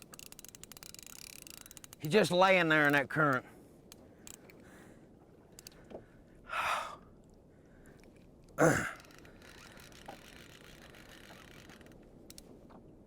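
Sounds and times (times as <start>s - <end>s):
person sighing: 6.5s - 7.0s, 8.6s - 9.1s.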